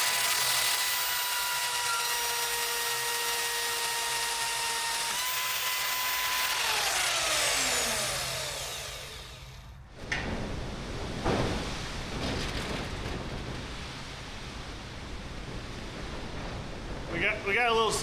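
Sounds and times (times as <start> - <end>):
angle grinder whining: 0.0 - 9.8.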